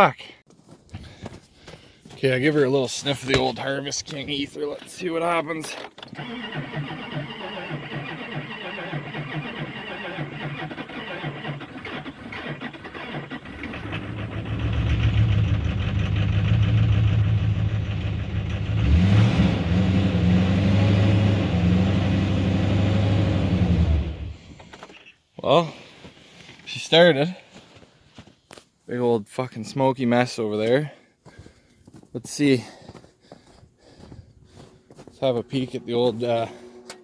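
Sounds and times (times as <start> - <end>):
diesel engine cranking: 5.6 - 25.1
diesel engine running: 6.2 - 24.6.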